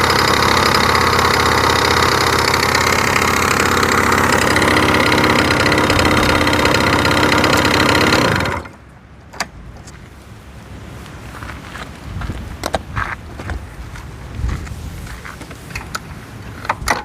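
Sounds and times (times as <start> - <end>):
scooter engine idling: 0.0 - 8.8.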